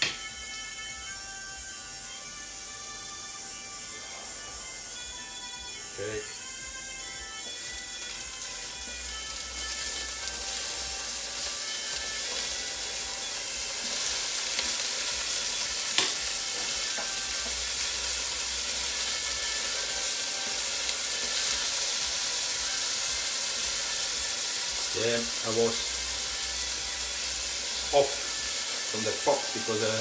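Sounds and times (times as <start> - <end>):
tomatoes sizzling in oil: 0.0 - 4.9, 5.8 - 30.0.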